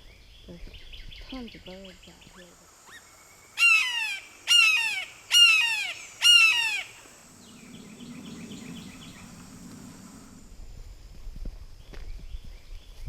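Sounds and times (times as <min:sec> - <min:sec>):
bird giving harsh call: 0:03.6 - 0:07.1.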